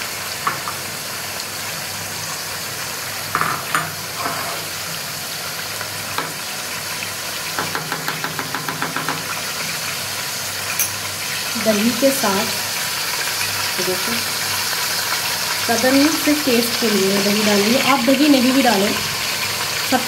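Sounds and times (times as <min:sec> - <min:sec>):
chicken sizzling in oil: 0:00.0 - 0:20.0
spoon scraping pot: 0:04.2 - 0:04.7.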